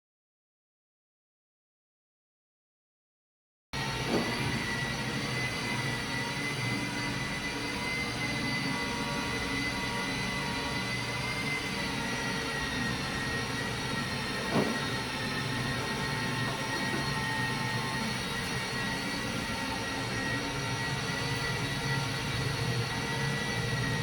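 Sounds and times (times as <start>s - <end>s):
power tool whining: 3.8s - 24.0s
brief knock: 14.5s - 14.8s.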